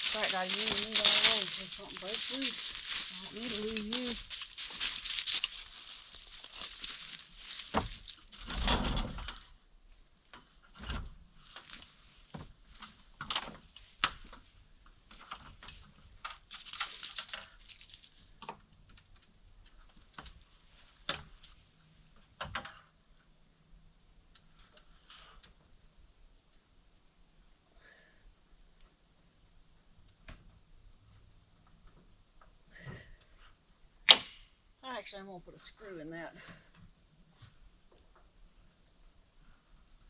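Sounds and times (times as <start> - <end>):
rustling and scraping of materials: 0.0 - 18.6.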